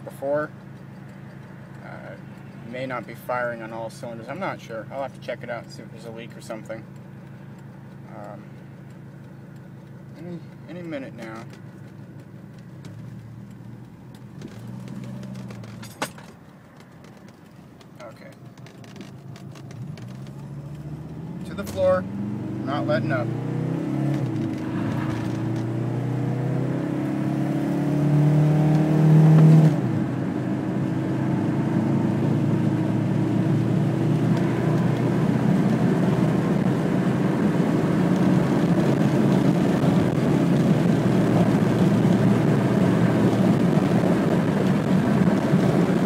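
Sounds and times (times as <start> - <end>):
diesel engine accelerating: 0.0 - 16.0, 18.0 - 46.0
road and wind noise: 0.0 - 46.0.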